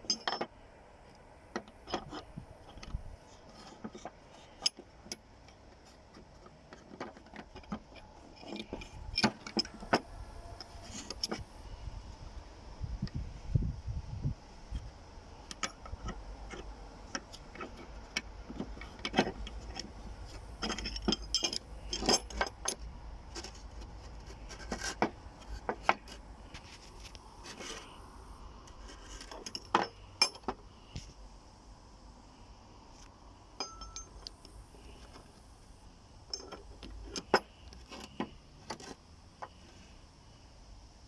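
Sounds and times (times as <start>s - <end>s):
metal tools clinking: 0.0s - 0.5s, 6.7s - 11.4s, 15.4s - 23.6s, 28.9s - 30.6s, 33.6s - 34.4s, 36.3s - 38.8s.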